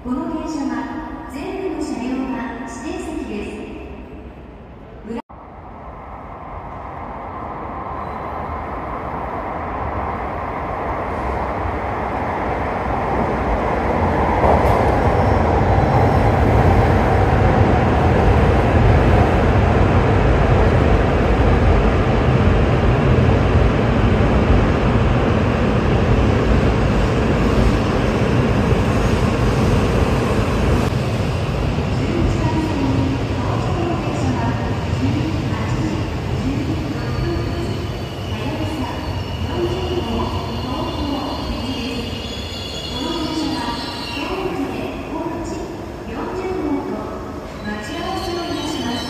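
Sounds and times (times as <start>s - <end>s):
train rumbling: 4.3s - 48.2s.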